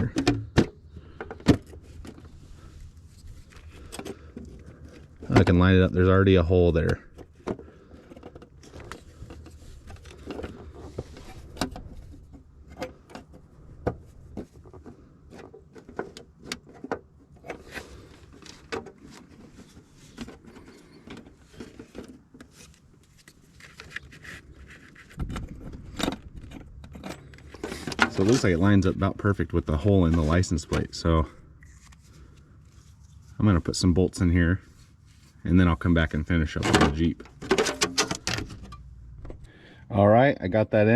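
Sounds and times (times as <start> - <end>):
metal parts clicking and scraping: 15.3 - 28.5, 36.6 - 38.9.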